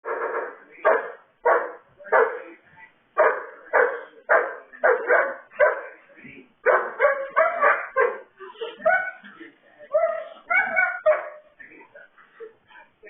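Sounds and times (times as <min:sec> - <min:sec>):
dog barking: 0:00.1 - 0:02.5, 0:03.2 - 0:06.0, 0:06.6 - 0:09.2, 0:10.0 - 0:11.5.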